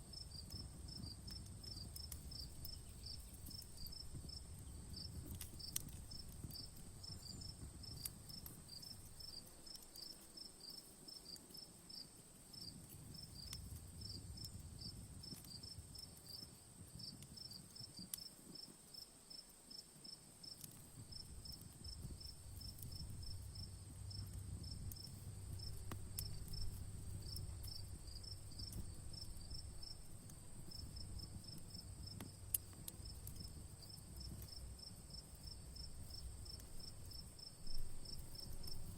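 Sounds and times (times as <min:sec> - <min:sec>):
campfire crackling: 0:00.0 - 0:38.9
high insect hum: 0:00.0 - 0:38.9
crickets chirping: 0:00.1 - 0:38.9.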